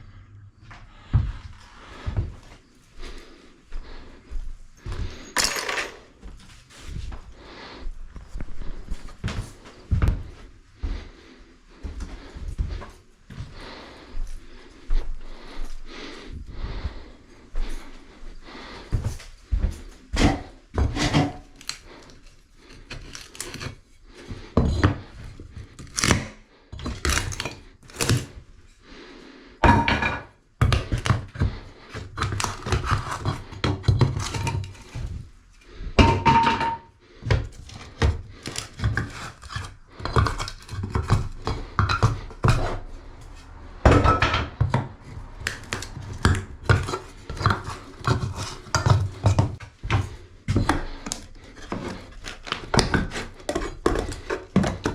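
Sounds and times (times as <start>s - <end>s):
hard objects thudding and clattering: 5.0s - 6.4s, 20.2s - 28.4s, 29.6s - 54.9s.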